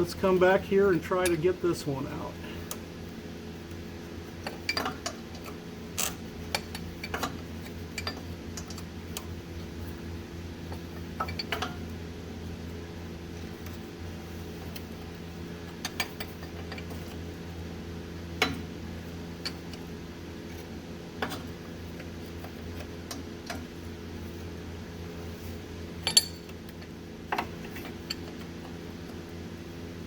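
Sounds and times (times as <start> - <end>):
steady low hum: 0.0 - 30.0
wrench clinking on metal: 26.0 - 26.6.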